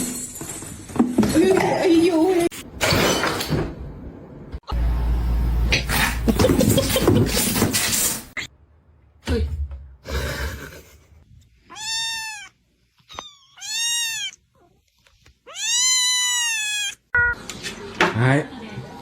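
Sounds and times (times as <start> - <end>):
cat meowing: 11.6 - 14.8, 15.4 - 17.1.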